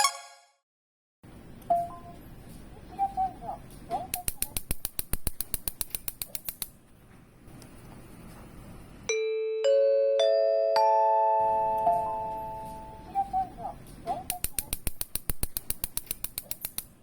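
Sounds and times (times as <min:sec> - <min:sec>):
rapid sharp clicks: 0:04.1 - 0:06.8, 0:14.3 - 0:17.0.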